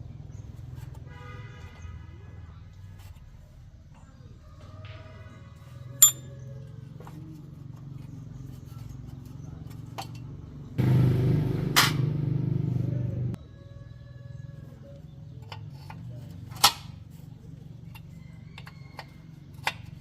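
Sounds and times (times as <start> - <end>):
metal clink: 6.0 - 6.3.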